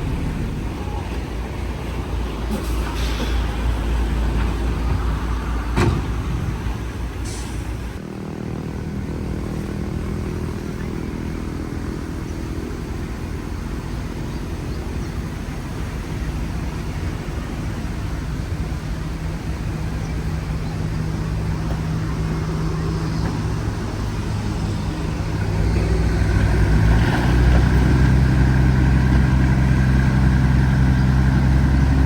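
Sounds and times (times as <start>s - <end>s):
diesel machinery engine rumbling: 0.0s - 32.0s
brief hiss: 2.5s - 3.6s.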